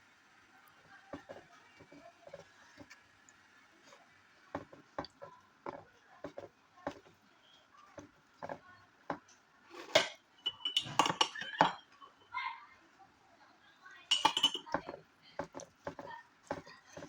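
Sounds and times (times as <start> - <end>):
utensil clinking against dishes: 9.8 - 12.3, 14.1 - 17.0.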